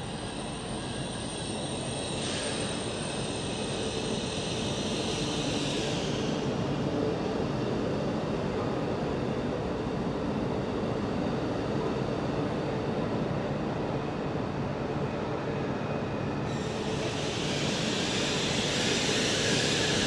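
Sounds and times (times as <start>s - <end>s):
electric train rumble: 0.0s - 20.0s
hiss: 0.1s - 6.7s, 16.5s - 20.0s.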